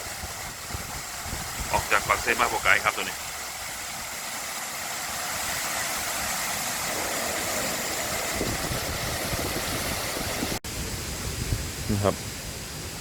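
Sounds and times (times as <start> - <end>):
wind buffeting microphone: 0.0 - 1.9, 6.9 - 13.0
waterfall rushing: 0.0 - 13.0.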